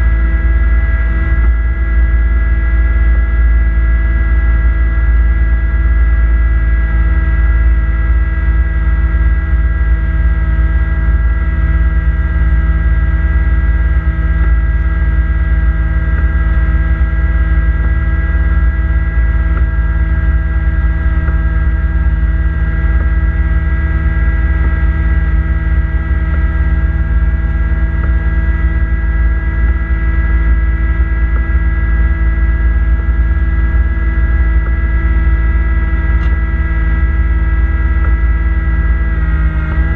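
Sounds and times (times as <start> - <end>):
snowblower high whine: 0.0 - 39.9
tractor diesel engine running: 6.3 - 39.9.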